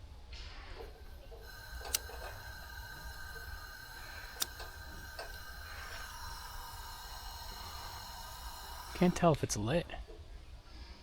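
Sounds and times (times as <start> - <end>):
faint high whine: 0.0 - 11.0
lighter clicking: 0.8 - 9.3.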